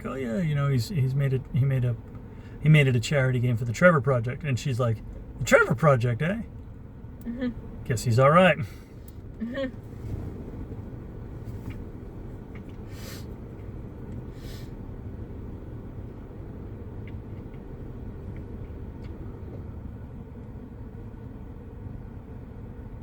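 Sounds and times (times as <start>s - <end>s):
road traffic rumble: 0.0s - 23.0s
short hissing sounds: 12.8s - 13.4s, 14.3s - 14.8s.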